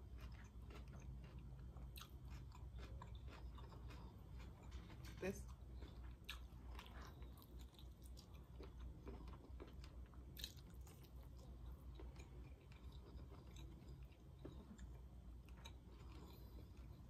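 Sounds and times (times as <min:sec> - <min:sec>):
chewing and biting food: 0:00.0 - 0:17.0.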